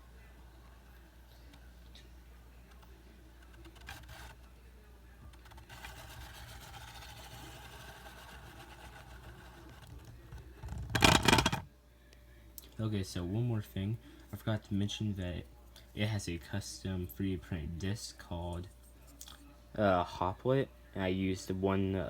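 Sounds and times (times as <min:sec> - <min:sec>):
spinning top grinding whir: 0:05.2 - 0:11.6
loud plastic clatter: 0:10.7 - 0:11.7.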